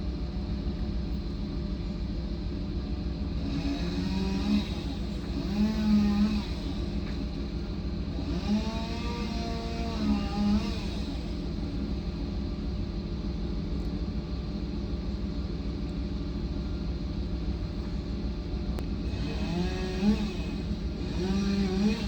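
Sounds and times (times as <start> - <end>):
truck engine revving: 3.5 - 7.2, 8.1 - 11.4, 19.1 - 22.0.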